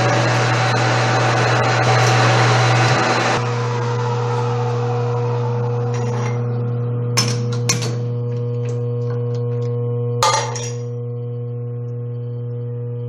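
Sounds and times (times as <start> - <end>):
metal lathe motor hum: 0.0 - 13.0.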